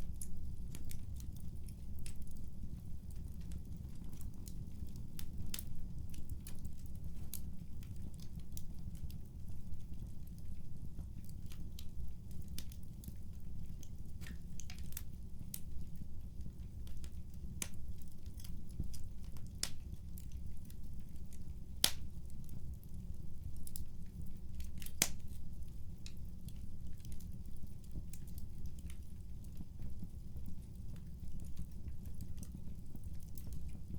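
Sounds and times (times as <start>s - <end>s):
wood fire crackling: 0.0s - 33.9s.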